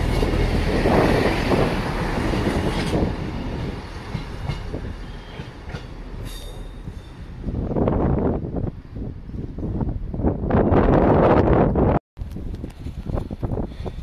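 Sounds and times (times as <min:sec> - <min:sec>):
train wheels rumbling on rails: 0:00.0 - 0:08.6
train clicks: 0:03.9 - 0:06.6.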